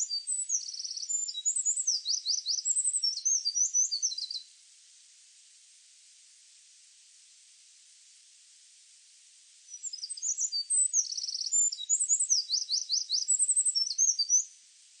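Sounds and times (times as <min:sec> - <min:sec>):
songbird singing trills: 0:00.0 - 0:04.5, 0:09.7 - 0:14.5
faint steady hiss: 0:00.0 - 0:15.0.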